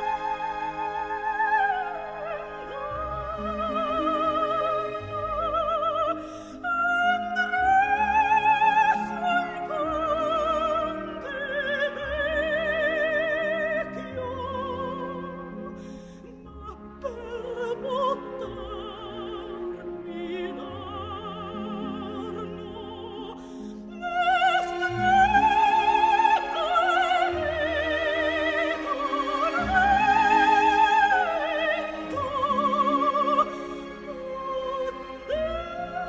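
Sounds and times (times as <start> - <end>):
orchestra playing: 0.0 - 36.0
soprano singing opera: 0.0 - 36.0.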